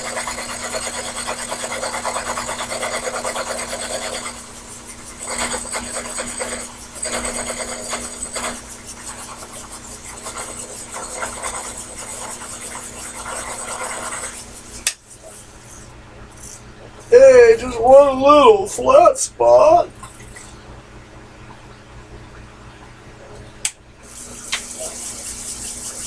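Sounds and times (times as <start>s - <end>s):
lathe tool scraping workpiece: 0.0s - 14.9s, 24.0s - 26.0s
motor hum: 0.0s - 26.0s.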